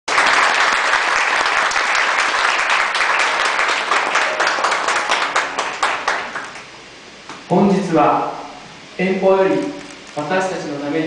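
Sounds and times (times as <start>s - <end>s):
crowd applauding: 0.1s - 6.8s.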